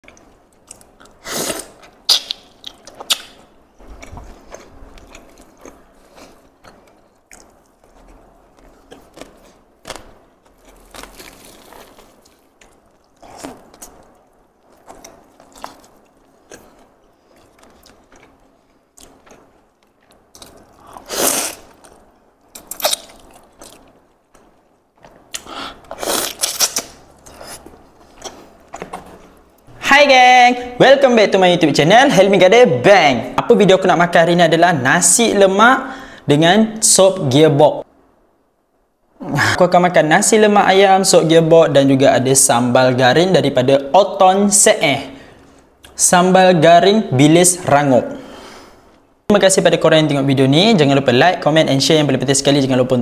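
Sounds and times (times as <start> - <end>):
chewing meat on the bone: 3.8 - 13.9.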